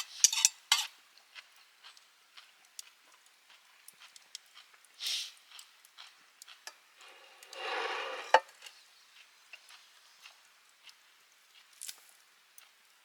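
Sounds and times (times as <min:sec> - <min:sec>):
short hissing noise: 0:05.0 - 0:05.4, 0:07.0 - 0:08.7.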